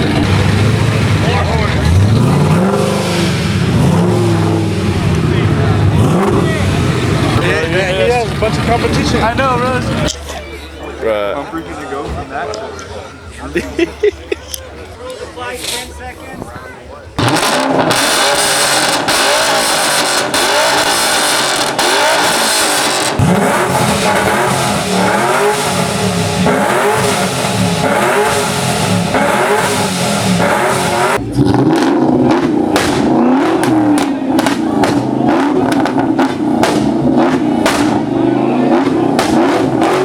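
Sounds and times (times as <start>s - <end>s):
car engine revving: 0.0s - 10.3s, 17.2s - 40.0s
exhaust cracks: 17.2s - 40.0s.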